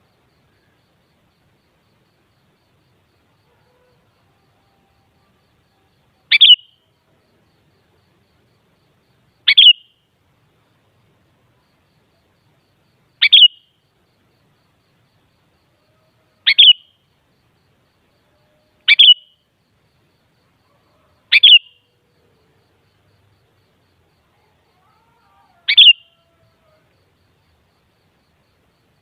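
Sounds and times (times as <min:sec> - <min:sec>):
bird chirping calls: 0:06.3 - 0:06.8, 0:09.5 - 0:10.0, 0:13.2 - 0:13.7, 0:16.5 - 0:16.9, 0:18.8 - 0:19.4, 0:21.3 - 0:21.8, 0:25.7 - 0:26.3.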